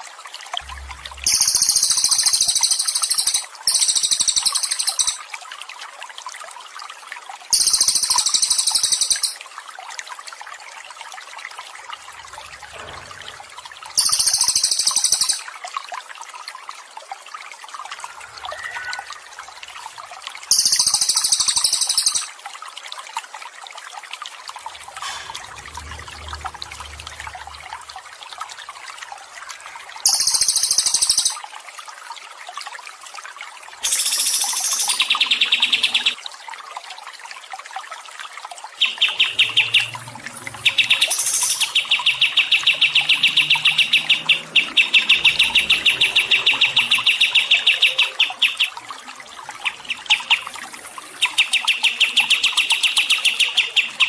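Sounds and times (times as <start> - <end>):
water trickling: 0.0 - 54.0
bird high-pitched trilling song: 1.1 - 5.2, 7.5 - 9.4, 14.0 - 15.4, 20.5 - 22.3, 30.1 - 31.4, 33.8 - 36.2, 38.8 - 48.8.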